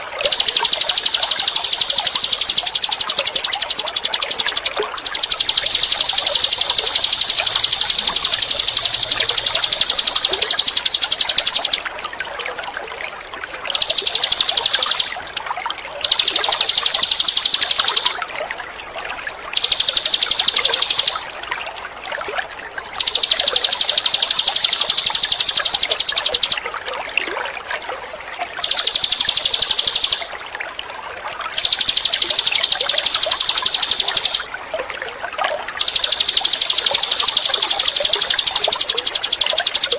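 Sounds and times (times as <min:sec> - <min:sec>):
running water trickling: 0:00.0 - 0:39.9
bird singing buzzing trill: 0:00.2 - 0:11.9.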